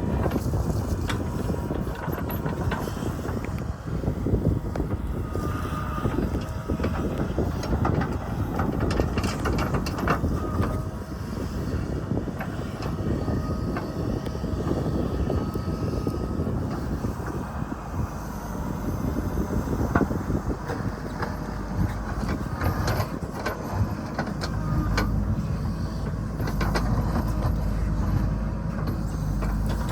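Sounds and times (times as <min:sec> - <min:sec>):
wind buffeting microphone: 0:00.0 - 0:29.9.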